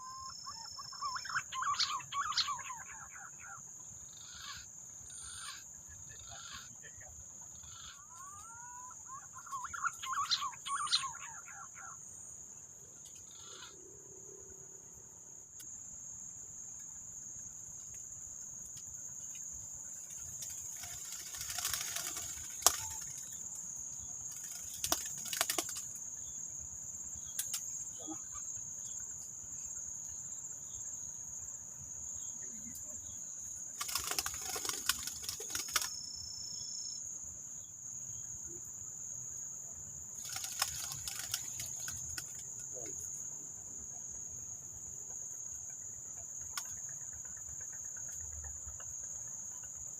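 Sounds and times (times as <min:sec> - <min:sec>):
bird call: 0:00.0 - 0:03.6, 0:07.6 - 0:12.0
crickets droning: 0:00.0 - 0:49.9.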